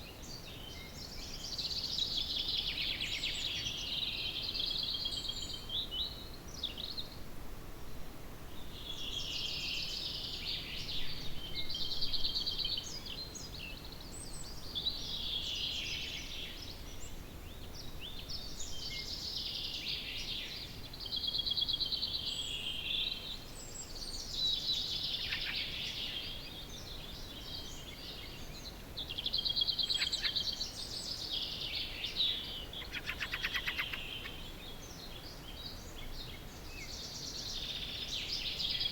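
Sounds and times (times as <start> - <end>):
faint background hiss: 0.0 - 38.9
songbirds trilling and chirping: 0.0 - 38.9.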